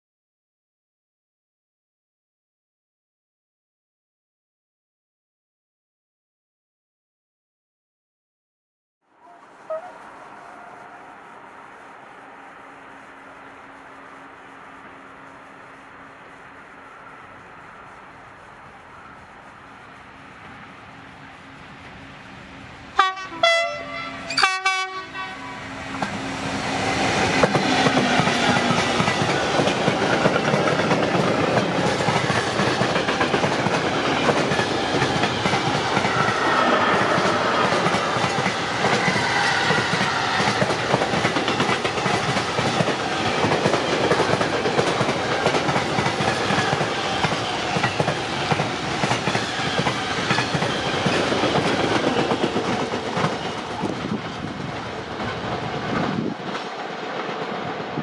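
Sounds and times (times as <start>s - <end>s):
train horn blast: 9.2s - 11.6s, 22.9s - 28.8s
train wheels on rails: 9.2s - 58.0s.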